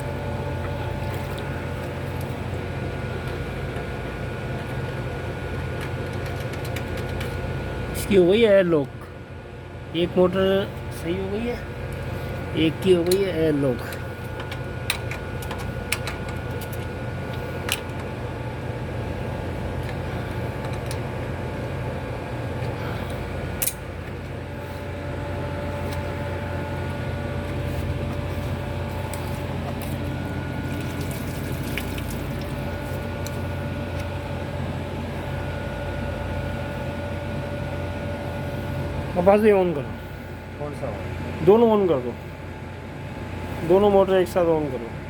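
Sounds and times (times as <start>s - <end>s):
water pump motor humming: 0.0s - 5.5s, 10.0s - 39.3s.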